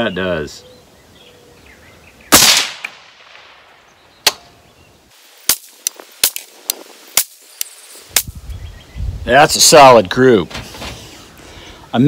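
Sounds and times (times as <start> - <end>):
rifle shots echoing: 2.3 - 3.7
sharp rifle cracks: 2.3 - 4.5, 5.4 - 8.3.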